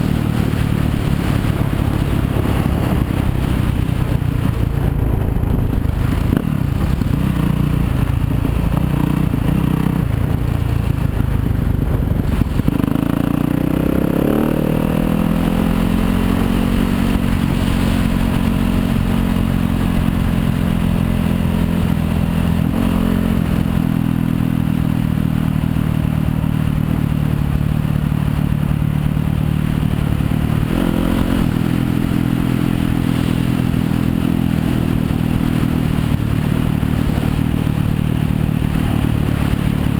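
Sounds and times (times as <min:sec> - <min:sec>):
dirt bike engine revving: 0:12.3 - 0:19.8, 0:30.4 - 0:39.9.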